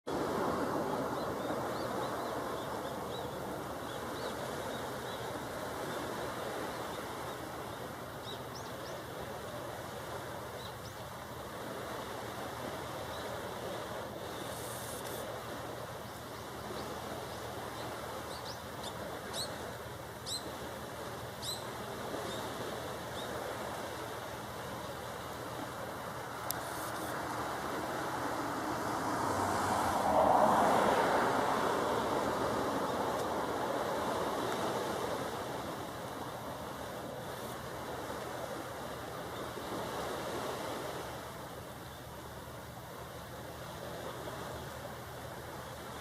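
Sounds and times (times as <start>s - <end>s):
outdoor rushing noise: 26.6s - 34.1s.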